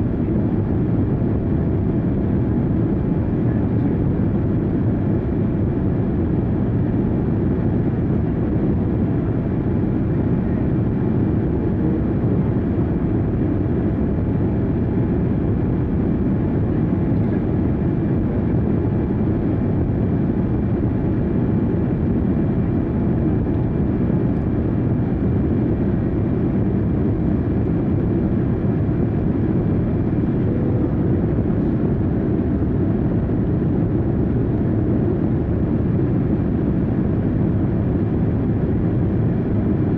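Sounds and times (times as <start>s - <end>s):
engine roar inside vehicle: 0.0s - 39.9s.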